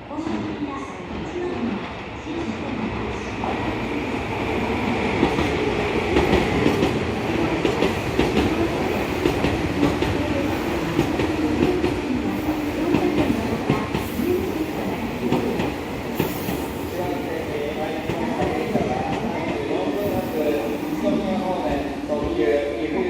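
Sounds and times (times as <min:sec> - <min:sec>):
train wheels clicking: 0:05.0 - 0:21.2.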